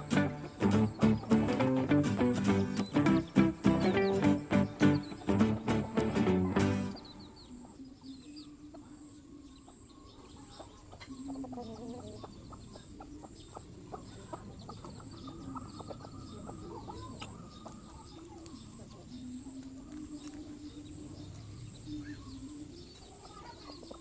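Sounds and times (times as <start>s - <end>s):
short high bird chirps: 0.0s - 7.4s
low repeated bird calls: 0.0s - 24.0s.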